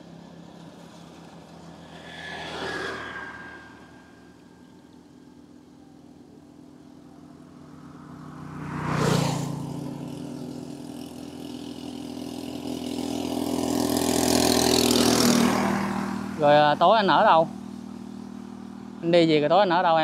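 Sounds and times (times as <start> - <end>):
vehicle passing: 0.0 - 6.2, 6.9 - 19.9
engine hum: 0.0 - 20.0.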